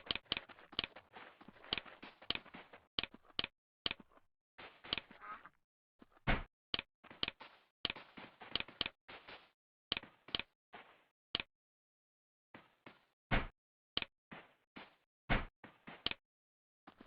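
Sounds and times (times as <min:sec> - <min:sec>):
sharp knocks and clicks: 0:06.3 - 0:10.5.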